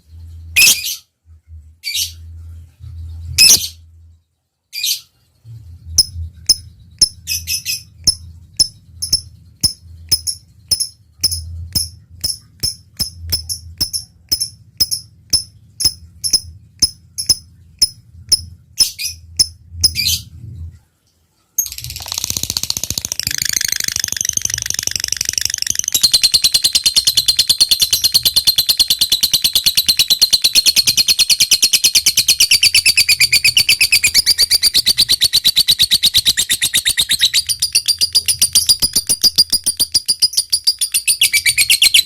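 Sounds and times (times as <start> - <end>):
lovebird chirping: 0.2 - 1.0, 2.9 - 3.8, 4.8 - 20.3, 21.6 - 42.0
low hum: 5.4 - 20.9, 21.6 - 28.7
lovebird rapid chatter: 21.6 - 42.0.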